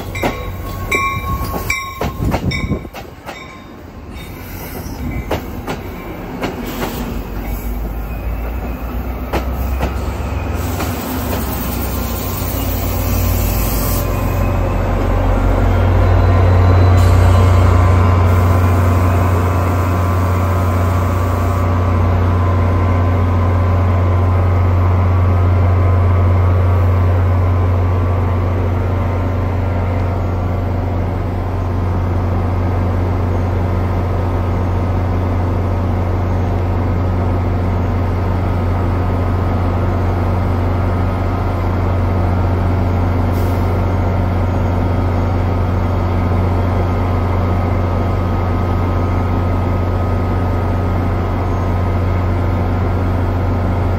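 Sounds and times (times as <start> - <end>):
diesel locomotive engine droning: 0.0 - 53.9.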